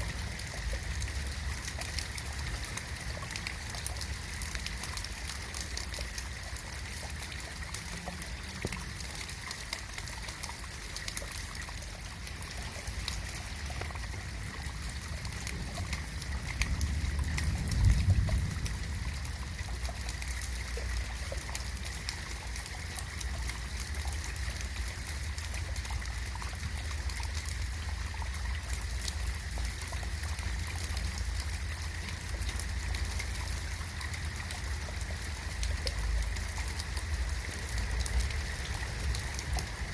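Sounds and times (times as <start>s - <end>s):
rain drops ticking: 0.0s - 39.9s
low rumble: 15.5s - 20.8s.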